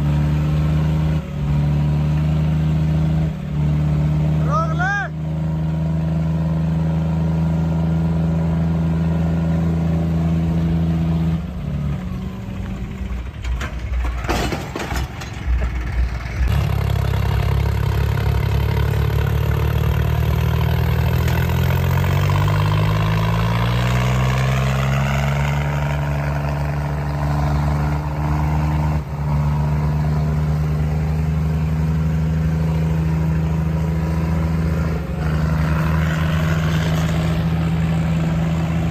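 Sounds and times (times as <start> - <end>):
tractor diesel engine running: 0.0 - 38.9
engine clattering knocks: 13.0 - 16.6.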